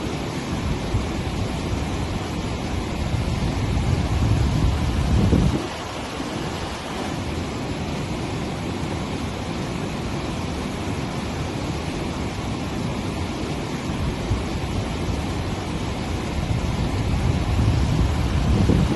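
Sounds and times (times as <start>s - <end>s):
floodwater rushing: 0.0s - 18.9s
wind buffeting microphone: 0.6s - 9.1s, 12.3s - 18.9s.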